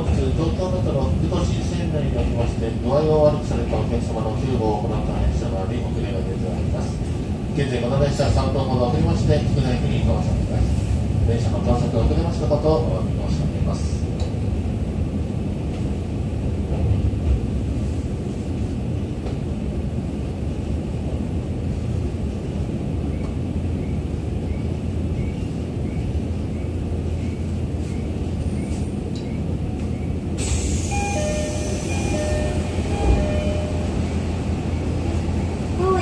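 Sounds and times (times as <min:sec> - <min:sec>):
train wheels rumbling on track: 0:00.0 - 0:36.0
short high tones: 0:30.9 - 0:34.0.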